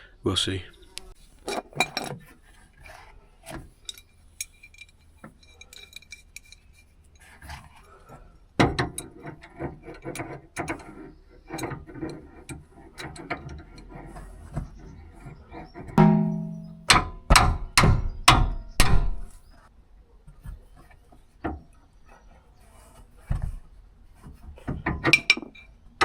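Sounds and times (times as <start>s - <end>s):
metal clicks and knocks: 1.4s - 2.3s, 15.8s - 19.3s, 24.7s - 25.7s.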